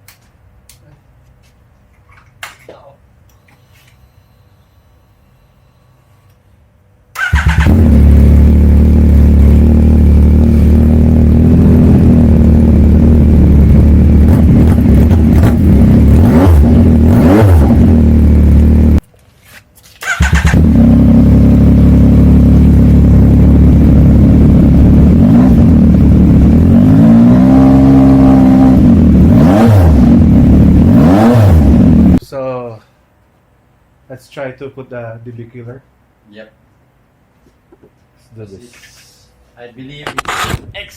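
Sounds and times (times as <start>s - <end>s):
motorcycle engine revving: 7.2s - 19.0s, 20.0s - 32.2s.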